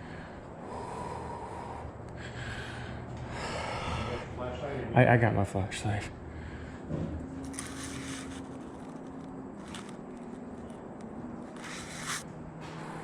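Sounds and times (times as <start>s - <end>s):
steady low hum: 0.0s - 13.0s
soft scrapes or rustles: 7.4s - 10.8s, 11.5s - 12.3s.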